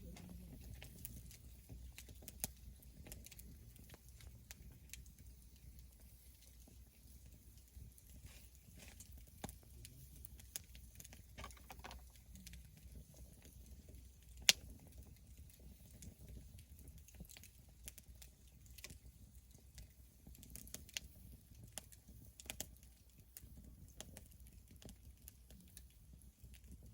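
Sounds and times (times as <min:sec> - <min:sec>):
faint low rumble: 0:00.0 - 0:01.9
campfire crackling: 0:00.0 - 0:26.9
sharp wood pop: 0:11.4 - 0:12.0.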